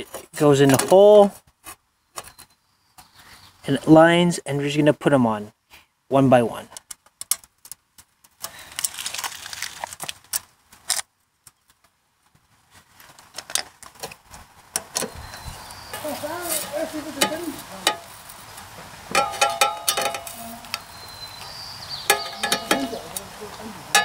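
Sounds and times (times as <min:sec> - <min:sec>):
metal screws clicking and scraping: 0:15.9 - 0:18.3, 0:19.2 - 0:20.9, 0:22.1 - 0:23.0.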